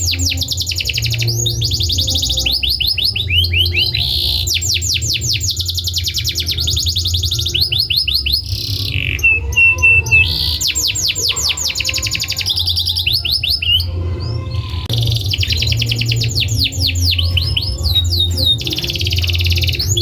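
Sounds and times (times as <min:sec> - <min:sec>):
canary singing trills: 0:00.0 - 0:20.0.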